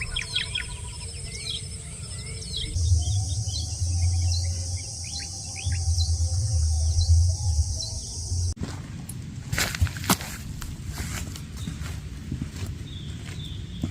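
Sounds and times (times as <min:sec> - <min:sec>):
birds chirping: 0:00.0 - 0:08.6, 0:10.6 - 0:13.9
insects buzzing: 0:00.0 - 0:08.6
low rumble: 0:00.0 - 0:13.9.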